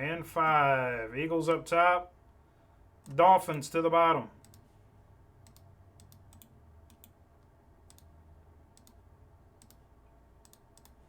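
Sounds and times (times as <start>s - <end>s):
keyboard and mouse clicks: 5.4s - 7.2s, 7.8s - 9.0s, 9.6s - 11.0s.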